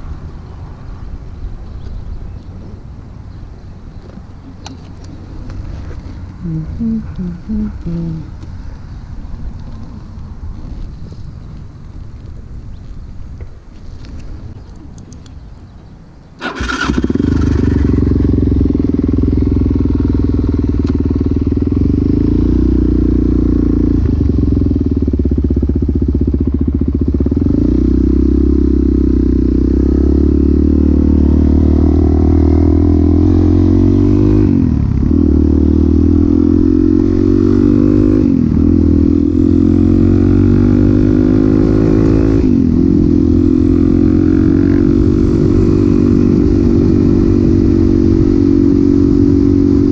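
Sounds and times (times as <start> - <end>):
motorcycle engine starting and running: 16.4 - 49.9.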